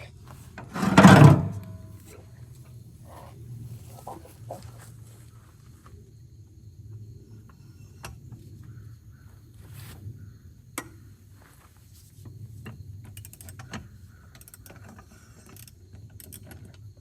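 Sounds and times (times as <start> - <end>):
wrench clicking on lug nuts: 13.2 - 13.6.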